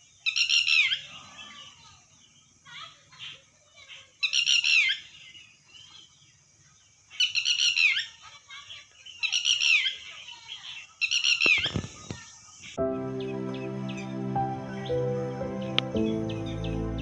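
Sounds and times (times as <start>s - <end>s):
faint bird chirps: 0.0s - 16.8s
lapwing harsh calls: 0.3s - 6.0s, 7.1s - 12.8s.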